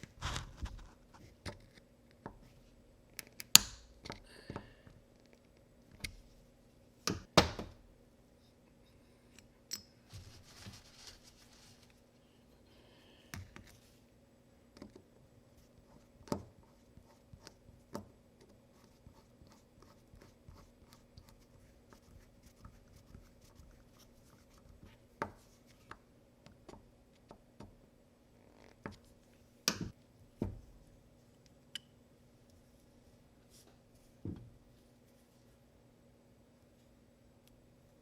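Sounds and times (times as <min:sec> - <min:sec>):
faint steady hum: 0:00.0 - 0:38.0
objects being handled: 0:08.9 - 0:12.2.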